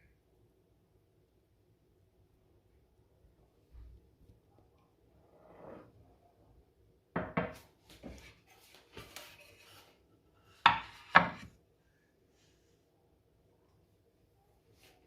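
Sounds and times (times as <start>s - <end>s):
knocks of kitchen things: 7.2s - 7.6s, 10.6s - 11.5s.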